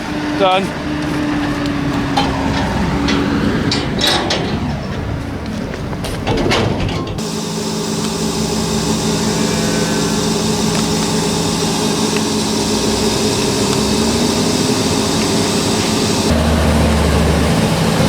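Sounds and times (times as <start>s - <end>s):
rough clattering noise: 1.0s - 7.4s
machine motor humming: 7.2s - 18.0s.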